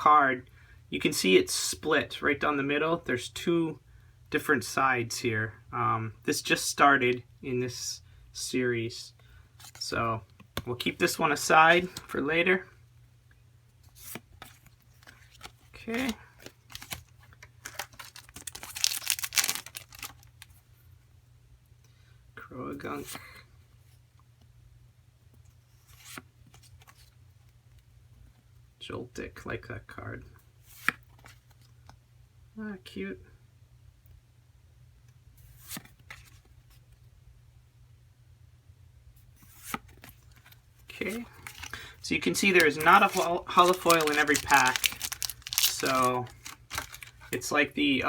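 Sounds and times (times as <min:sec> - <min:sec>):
cards rustling: 0:09.6 - 0:12.3, 0:13.8 - 0:20.6, 0:25.8 - 0:27.2, 0:35.5 - 0:37.0, 0:39.4 - 0:47.5
cards clicking and tapping: 0:14.0 - 0:20.2, 0:41.1 - 0:47.4.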